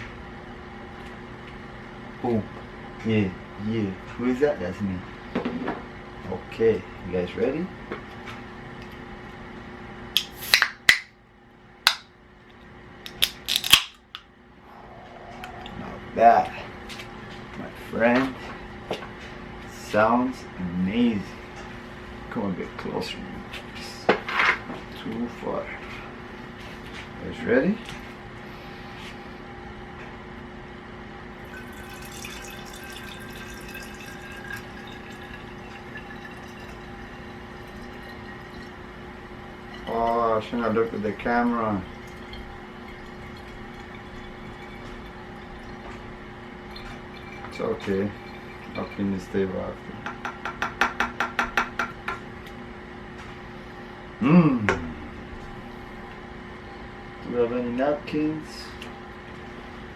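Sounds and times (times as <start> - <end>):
background hum: 0.0 - 59.9
can clicks and cracks: 10.2 - 11.1, 11.8 - 12.1, 13.0 - 14.3
soda fizzing: 31.4 - 40.2, 40.8 - 49.6.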